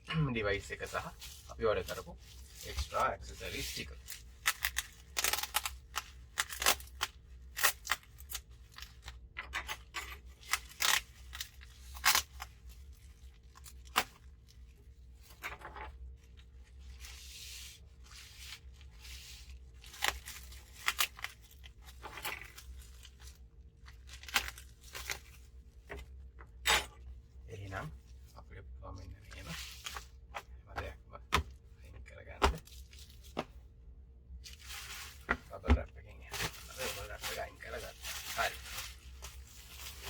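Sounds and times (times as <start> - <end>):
plastic wrapping crinkling and tearing: 0.5 - 9.4, 10.2 - 15.4, 16.1 - 25.8, 34.4 - 35.6, 36.2 - 40.0.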